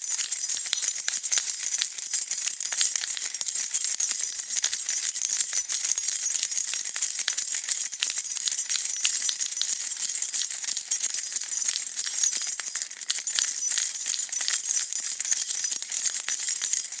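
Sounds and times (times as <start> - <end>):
metal keys jingling: 0.0 - 4.8, 15.2 - 17.0.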